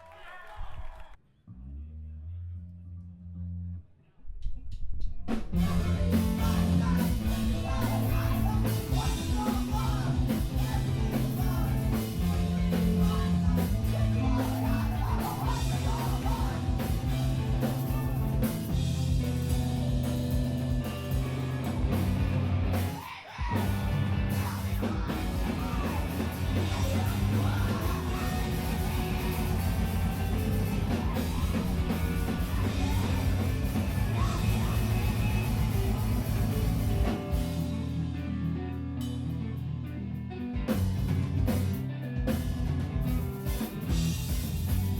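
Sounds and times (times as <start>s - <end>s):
bass: 0.3s - 44.9s
distorted guitars: 5.1s - 44.9s
pounding drum kit: 5.3s - 38.0s, 40.6s - 44.9s
yelled vocals: 5.5s - 37.8s.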